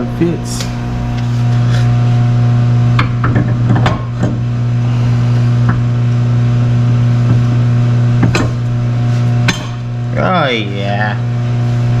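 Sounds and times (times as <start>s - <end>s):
steady low hum: 0.0s - 12.0s
metal clanks and knocks: 8.2s - 10.0s.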